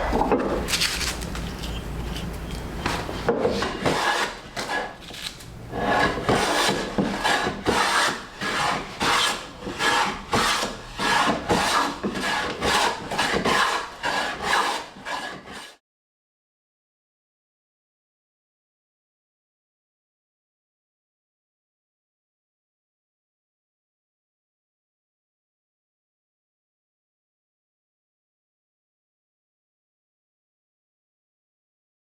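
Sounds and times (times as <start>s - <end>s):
rasp scraping wood: 0.0s - 15.8s.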